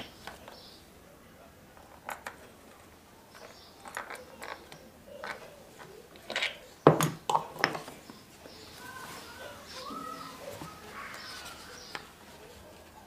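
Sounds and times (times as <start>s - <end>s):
metal tools clicking and knocking: 3.3s - 7.9s.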